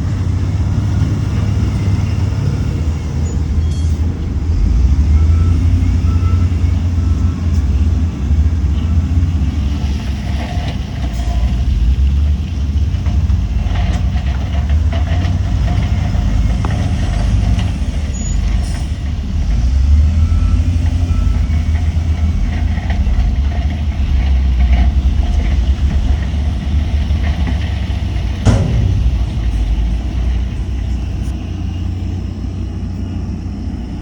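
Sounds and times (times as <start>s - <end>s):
diesel machinery engine rumble: 0.0s - 34.0s
brief knocks: 28.4s - 31.4s.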